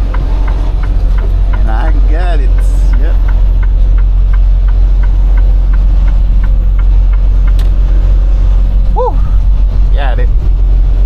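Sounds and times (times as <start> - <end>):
light ticking: 0.0 - 7.8
truck engine and road rumble: 0.0 - 11.0.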